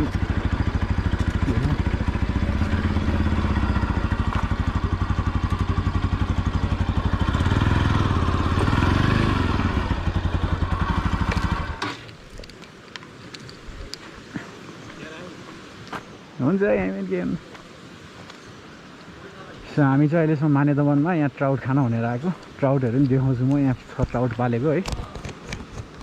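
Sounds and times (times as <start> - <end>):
motorcycle engine running: 0.0 - 12.1.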